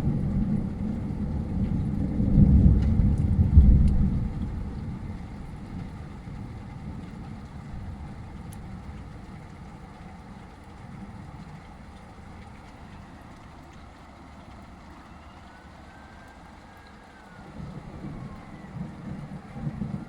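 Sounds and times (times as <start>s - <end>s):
rain hissing: 0.0s - 20.0s
thunder rumbling: 0.0s - 20.0s.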